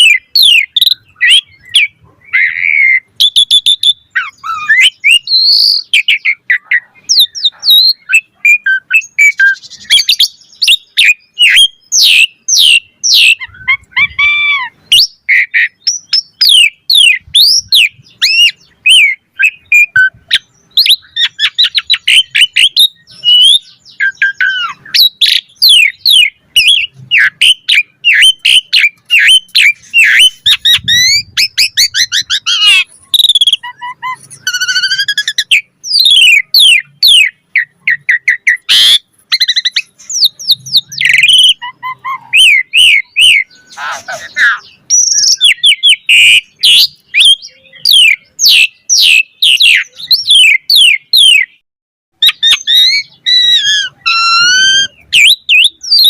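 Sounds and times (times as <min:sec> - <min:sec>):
starling singing: 0:00.0 - 0:51.6, 0:52.2 - 0:56.0.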